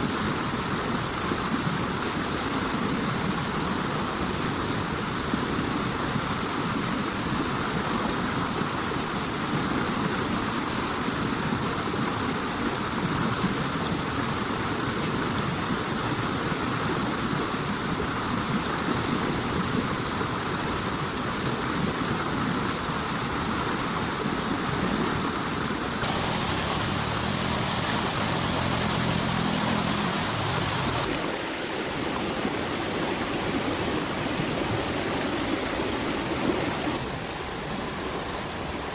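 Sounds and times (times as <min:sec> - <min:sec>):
heavy rain falling: 0:26.0 - 0:31.2.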